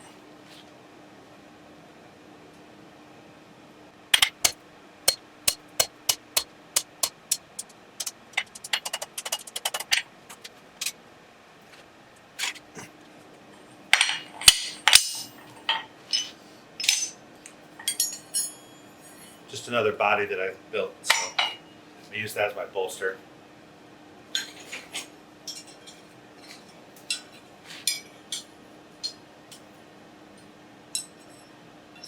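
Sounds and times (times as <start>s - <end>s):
hammer striking steel rivet: 4.2s - 10.0s.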